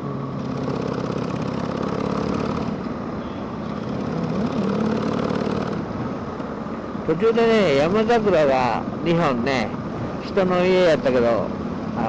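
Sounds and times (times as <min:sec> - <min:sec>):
motorcycle engine cruising: 0:00.0 - 0:08.8
road noise: 0:00.0 - 0:12.0.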